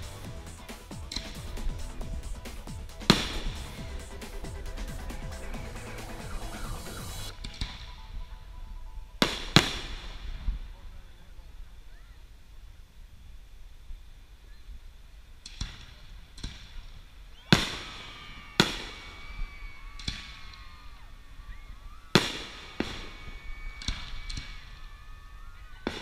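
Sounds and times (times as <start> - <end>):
fireworks bangs with echo: 0.0 - 7.9, 17.5 - 19.2, 22.1 - 24.7.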